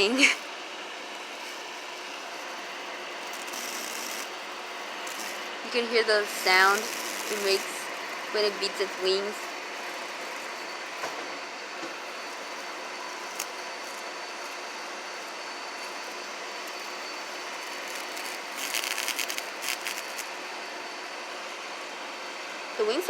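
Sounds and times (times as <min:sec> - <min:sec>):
airy hiss: 0:03.1 - 0:20.8
cicada wings fluttering: 0:03.2 - 0:10.8, 0:12.0 - 0:20.3.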